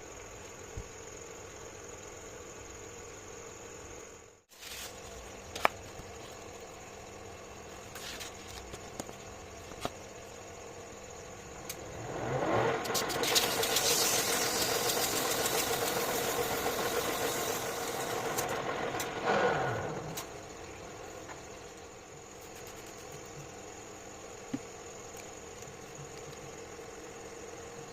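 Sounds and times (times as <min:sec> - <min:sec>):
lathe motor whine: 0:10.5 - 0:21.9.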